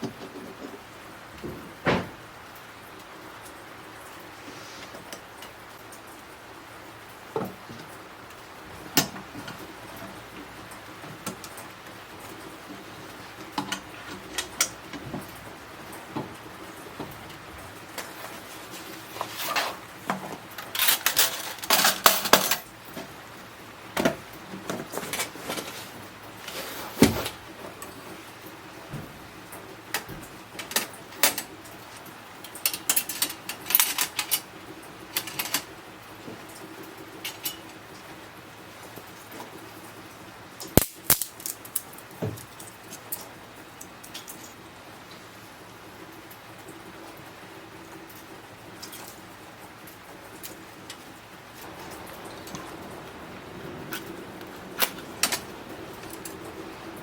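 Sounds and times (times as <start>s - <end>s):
cooking gear clinking and clattering: 8.7s - 23.3s, 29.9s - 37.9s, 40.6s - 44.7s, 48.7s - 57.0s.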